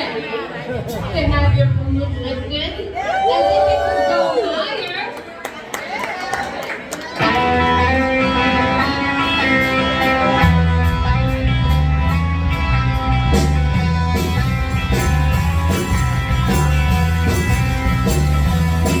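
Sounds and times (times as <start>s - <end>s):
bass line: 0.7s - 4.1s, 7.4s - 19.0s
ringing electric guitar: 7.2s - 19.0s.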